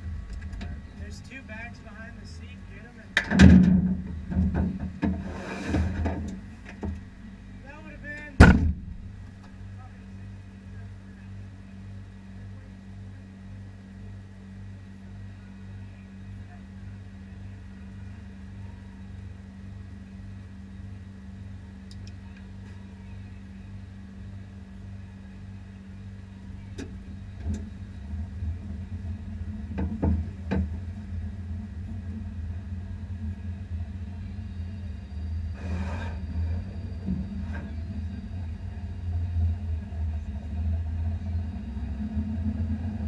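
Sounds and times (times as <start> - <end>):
car engine idling: 0.0 - 5.2, 5.8 - 43.0
sharp knocks: 3.2 - 5.2, 8.4 - 9.1.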